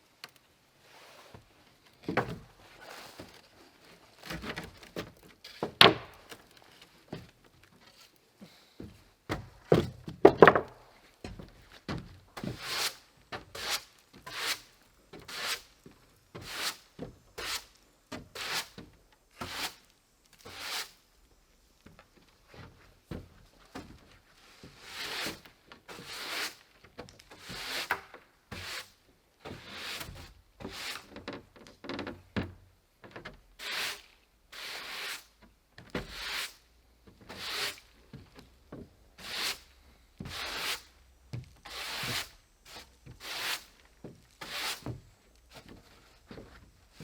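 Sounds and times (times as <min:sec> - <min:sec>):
scraping strokes on wood: 0:12.4 - 0:15.8, 0:16.4 - 0:21.0, 0:23.8 - 0:26.7, 0:27.3 - 0:31.2, 0:33.6 - 0:35.4, 0:36.0 - 0:36.6, 0:37.2 - 0:37.9, 0:39.2 - 0:47.0.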